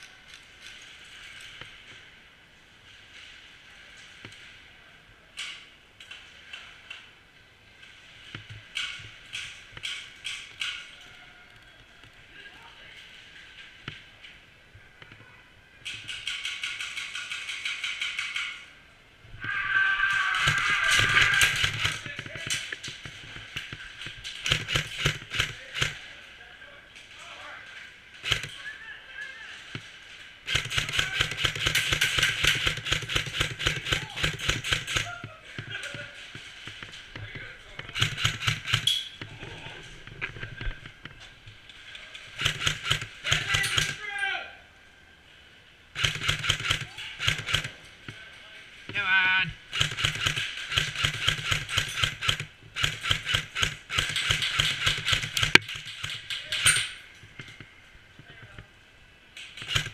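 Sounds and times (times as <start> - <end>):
airsoft gun shots: 20.0 - 22.2, 24.4 - 26.0, 30.5 - 35.1, 49.7 - 56.8, 59.6 - 59.9.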